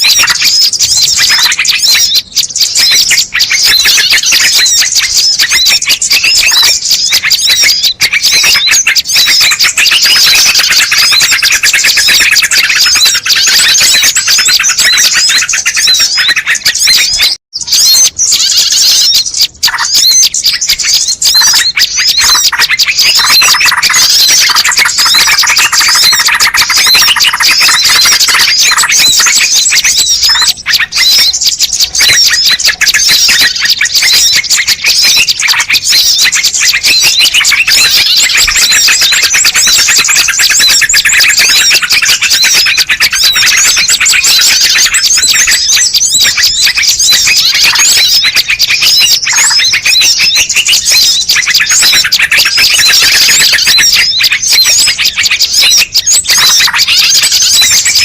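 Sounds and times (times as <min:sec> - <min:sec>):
chorus of small birds chirping: 0:00.0 - 0:58.0.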